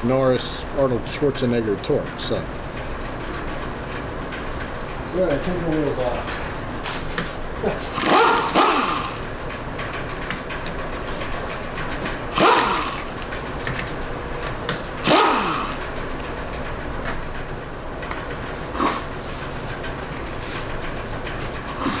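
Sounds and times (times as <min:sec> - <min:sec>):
impact wrench spinning lug nuts: 0:06.3 - 0:17.4, 0:18.4 - 0:22.0.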